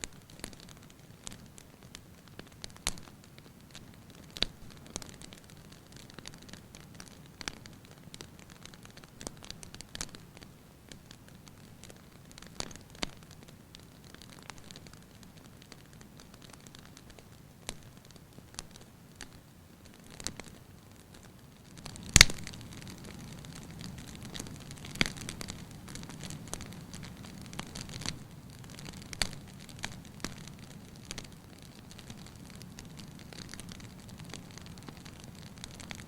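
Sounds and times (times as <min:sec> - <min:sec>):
wood fire crackling: 0:00.0 - 0:36.0
loud pop from fire: 0:22.0 - 0:22.6.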